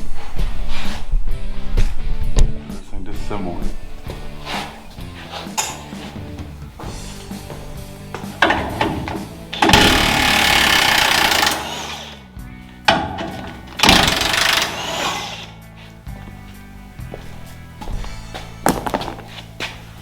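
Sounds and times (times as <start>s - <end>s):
background music: 0.0s - 20.0s
power tool bursts winding down: 8.4s - 12.3s, 12.9s - 15.6s.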